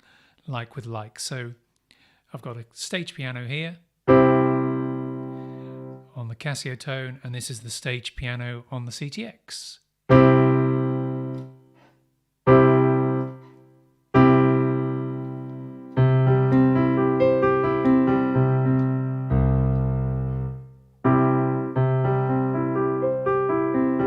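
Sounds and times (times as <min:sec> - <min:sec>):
digital piano chords: 0:04.1 - 0:06.1, 0:10.1 - 0:11.7, 0:12.5 - 0:24.0.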